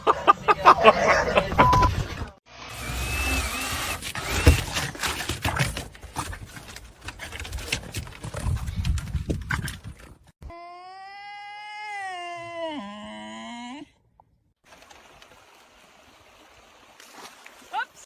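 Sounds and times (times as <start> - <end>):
clattering and rustling: 4.2 - 10.3.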